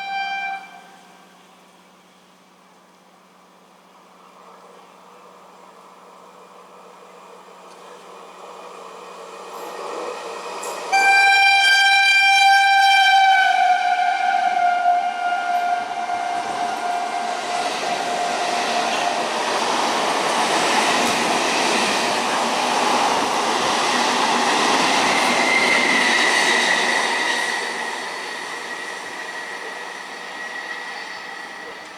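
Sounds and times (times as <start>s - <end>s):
train horn blast: 0.0s - 1.5s, 10.9s - 19.2s
train rumbling on track: 0.0s - 31.9s.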